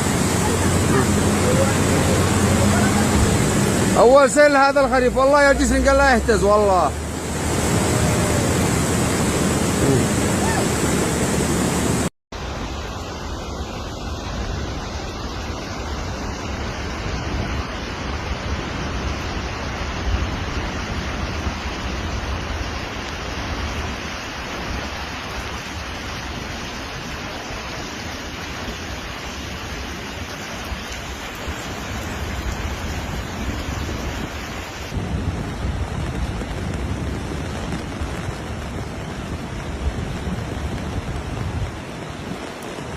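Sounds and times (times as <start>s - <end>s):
torrent of rushing water: 0.0s - 42.9s.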